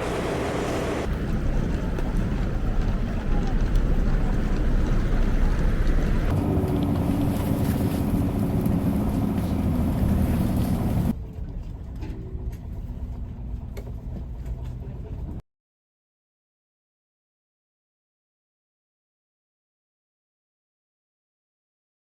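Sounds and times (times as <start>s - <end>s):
engine rumbling: 0.0s - 15.4s.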